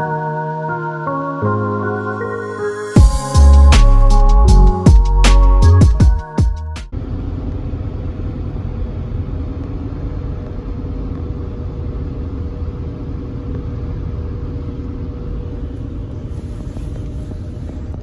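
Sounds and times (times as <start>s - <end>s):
car engine rumble: 6.9s - 18.0s
faint hum: 6.9s - 18.0s.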